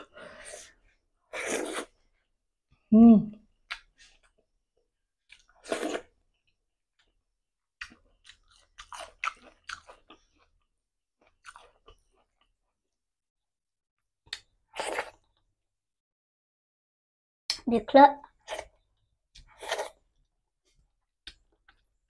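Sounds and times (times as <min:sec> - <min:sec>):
person chewing food: 0:05.2 - 0:12.8, 0:18.4 - 0:22.0.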